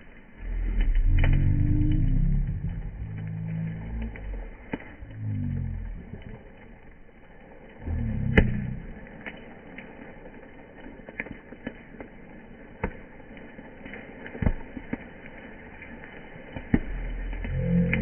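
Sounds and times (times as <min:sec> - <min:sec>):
bonfire crackling and popping: 0:00.0 - 0:18.0
brief low rumble: 0:00.4 - 0:06.7, 0:07.8 - 0:09.0.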